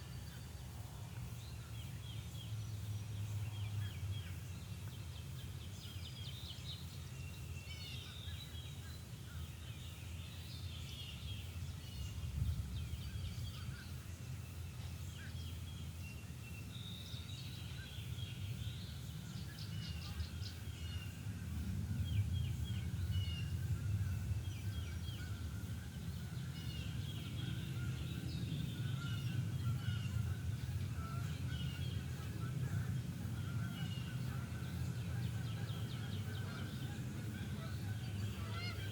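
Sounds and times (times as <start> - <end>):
songbirds chirping and trilling: 0.0 - 38.9
steady low rumble: 18.0 - 38.9.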